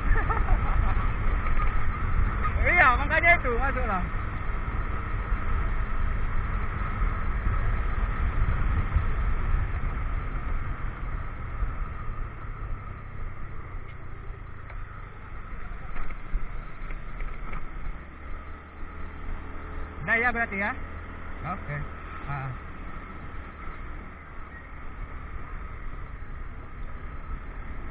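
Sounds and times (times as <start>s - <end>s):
wind rumble on microphone: 0.0s - 18.2s
motorcycle engine running: 0.0s - 27.9s.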